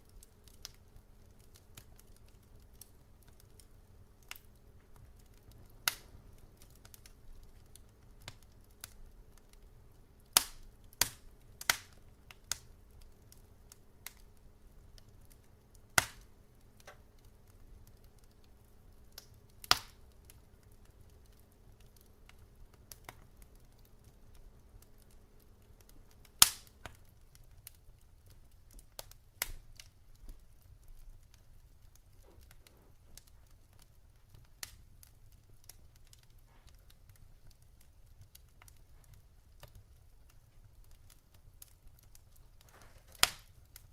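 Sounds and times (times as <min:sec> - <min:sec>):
logs crackling in fireplace: 0:00.0 - 0:43.9.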